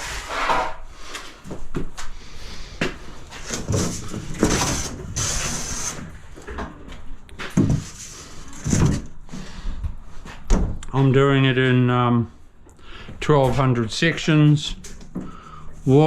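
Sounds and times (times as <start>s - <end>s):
scraping: 3.3s - 6.2s.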